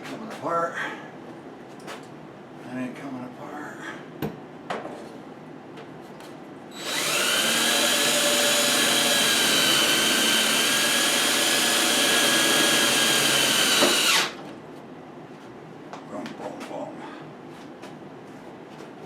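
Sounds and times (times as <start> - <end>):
power tool high whine: 6.7 - 14.4.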